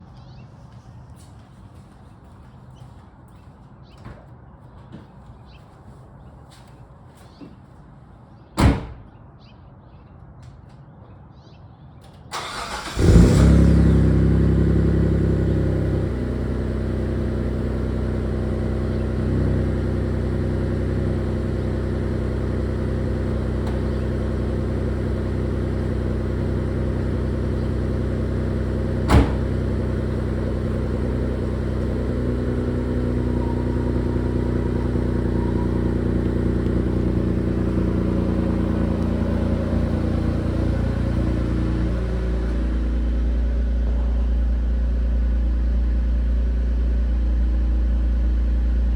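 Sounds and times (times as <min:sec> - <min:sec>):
car engine starting and idling: 0:12.2 - 0:48.9.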